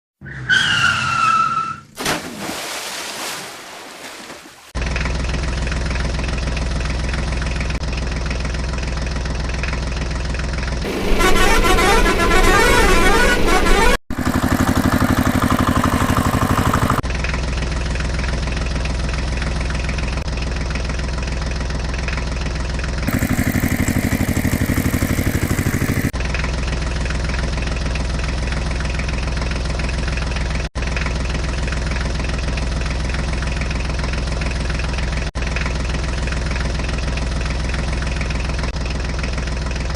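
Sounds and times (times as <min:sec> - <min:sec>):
heavy vehicle engine running: 0:04.8 - 0:39.9
vehicle horn honking: 0:10.9 - 0:17.0.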